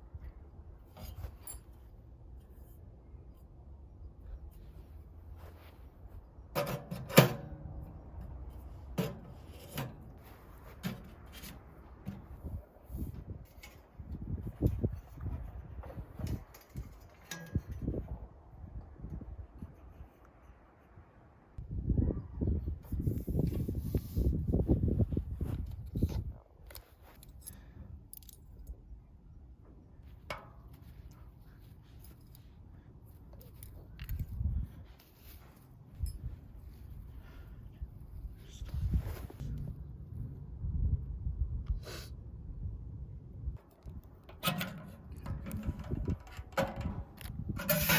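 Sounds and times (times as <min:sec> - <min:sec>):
bump and rustle: 0:04.6 - 0:18.2, 0:44.2 - 0:47.9
metal stove parts clanking: 0:06.5 - 0:07.8, 0:08.9 - 0:10.1, 0:16.2 - 0:18.0, 0:44.2 - 0:47.9.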